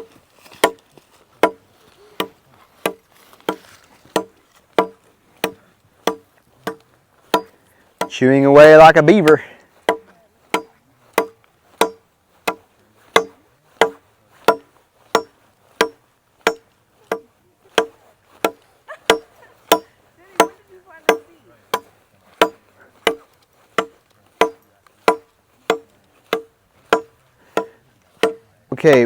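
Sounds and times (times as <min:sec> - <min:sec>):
machete chopping wood: 0:00.0 - 0:01.6, 0:02.2 - 0:08.2, 0:09.8 - 0:28.4.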